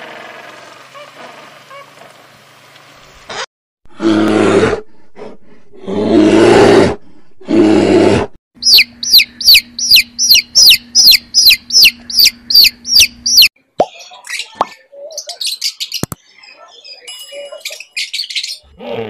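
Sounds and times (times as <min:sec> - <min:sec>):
bear growling: 0:03.9 - 0:08.4
chick peeping: 0:08.6 - 0:13.5.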